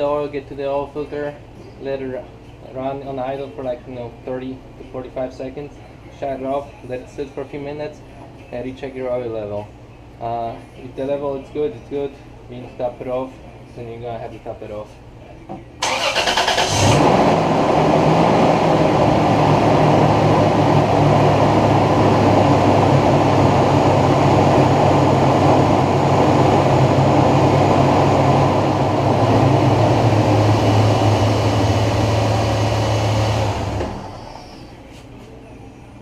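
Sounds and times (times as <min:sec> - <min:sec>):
engine starter cranking: 0:15.8 - 0:17.2
engine idling: 0:15.8 - 0:34.7.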